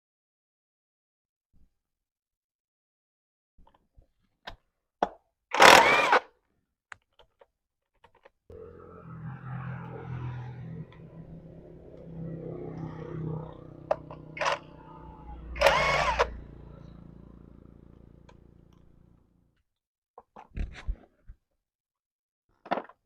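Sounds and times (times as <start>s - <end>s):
motor humming: 12.7s - 19.2s.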